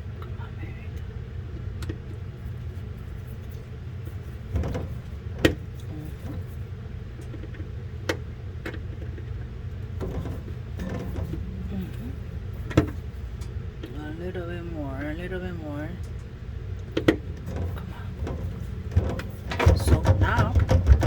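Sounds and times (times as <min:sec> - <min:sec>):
low mechanical hum: 0:00.0 - 0:21.0
sharp clicks and knocks: 0:16.8 - 0:21.0.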